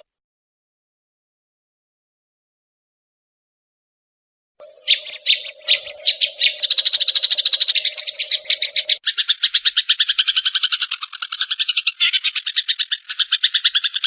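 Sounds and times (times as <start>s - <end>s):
songbird chips and trill: 4.6s - 14.0s.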